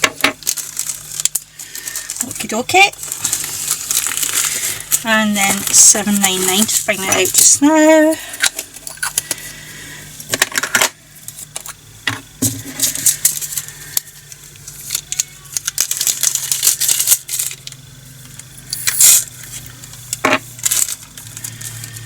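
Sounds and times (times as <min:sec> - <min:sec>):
small plastic beads rattling: 0:14.8 - 0:17.8.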